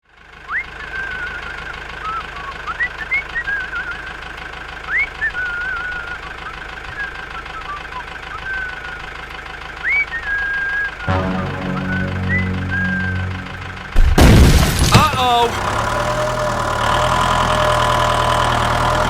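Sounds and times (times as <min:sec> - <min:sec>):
high whistling notes: 0:11.1 - 0:14.4.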